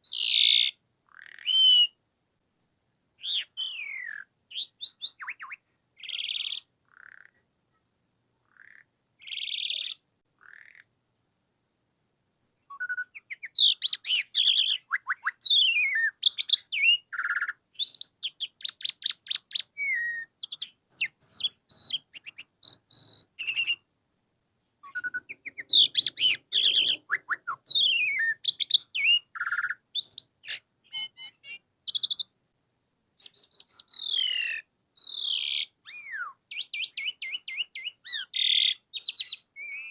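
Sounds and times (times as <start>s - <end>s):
starling singing: 0.0s - 2.0s, 3.2s - 7.8s, 12.7s - 23.9s, 24.8s - 32.3s, 33.2s - 39.9s.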